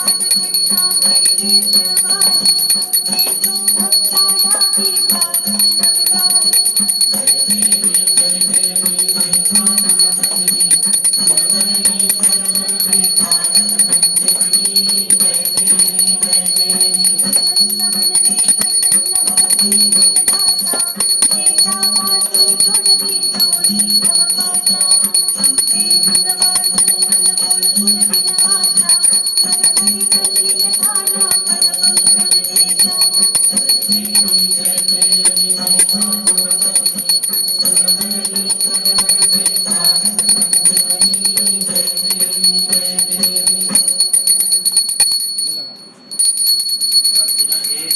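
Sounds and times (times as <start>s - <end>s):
devotional singing: 0.0s - 45.2s
fast rattling hand percussion: 0.0s - 45.5s, 46.2s - 47.9s.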